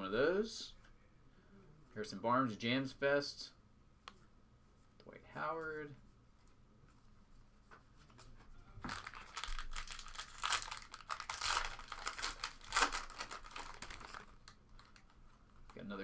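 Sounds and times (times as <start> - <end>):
foil wrapper tearing and crinkling: 8.9 - 15.1.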